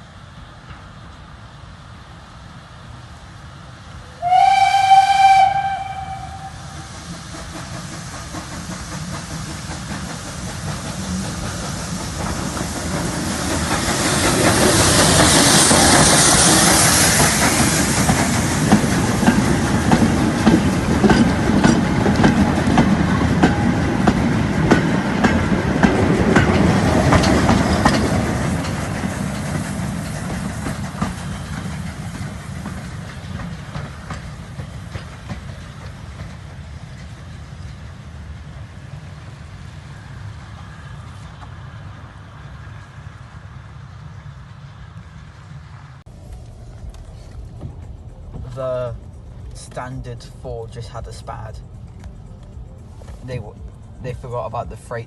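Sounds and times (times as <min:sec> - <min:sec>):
train passing: 0:00.0 - 0:55.0
steam locomotive whistle: 0:04.1 - 0:06.9
wheels clicking over rail joints: 0:06.0 - 0:38.2.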